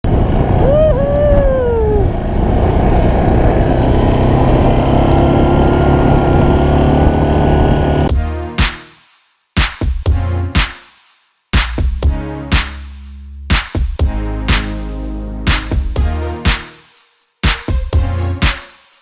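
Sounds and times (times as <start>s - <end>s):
high rising and falling whoop: 0.5s - 2.2s.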